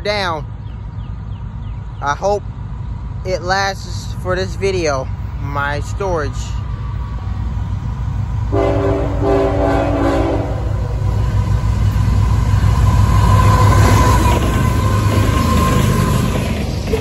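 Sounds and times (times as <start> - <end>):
locomotive engines and wheels rumbling: 0.0 - 17.0
locomotive air horn: 8.5 - 10.8.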